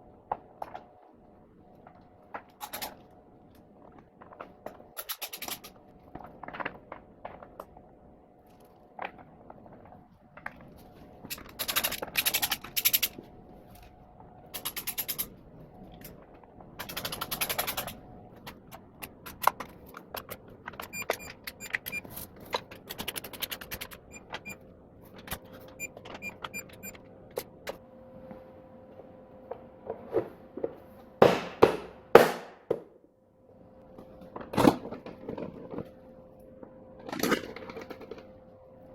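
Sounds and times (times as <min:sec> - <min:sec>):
loud knocks: 0:31.2 - 0:32.9.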